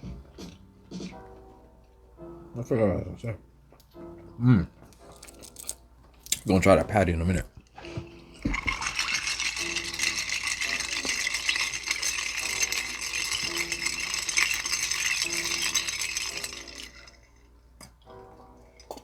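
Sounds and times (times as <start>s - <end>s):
soft background music: 0.0s - 19.0s
food packaging crinkling: 5.0s - 6.5s.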